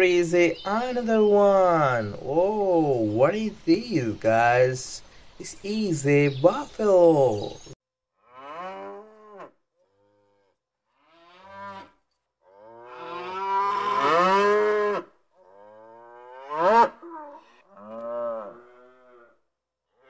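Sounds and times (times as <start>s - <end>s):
cattle mooing: 8.2s - 19.4s.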